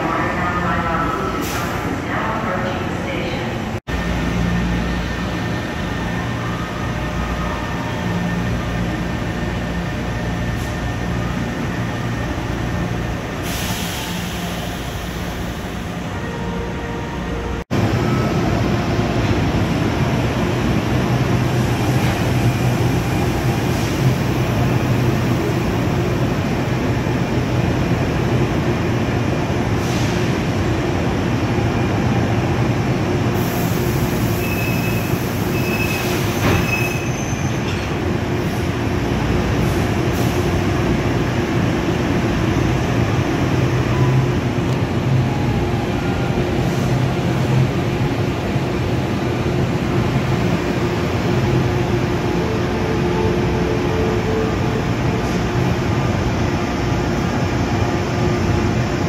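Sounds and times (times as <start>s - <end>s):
train wheels rumbling on rail: 17.4s - 59.0s
high wheel squeal: 34.3s - 37.9s.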